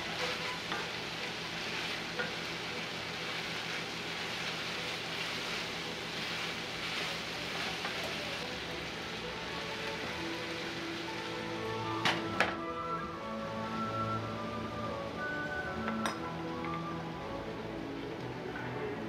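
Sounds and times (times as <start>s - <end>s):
vegetables sizzling in a skillet: 0.0s - 18.5s.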